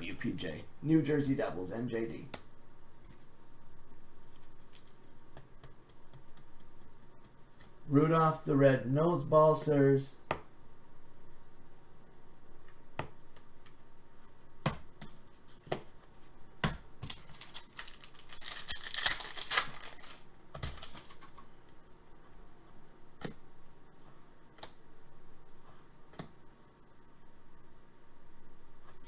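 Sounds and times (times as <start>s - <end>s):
cards clicking and tapping: 4.7s - 7.8s
wrapper crinkling and tearing: 17.0s - 21.4s.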